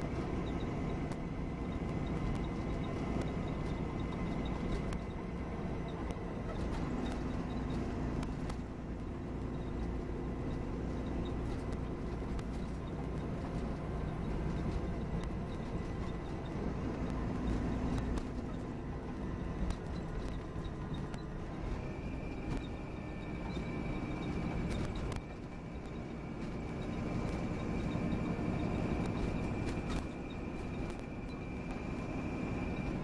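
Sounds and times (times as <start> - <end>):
coach engine and road rumble: 0.0 - 33.0.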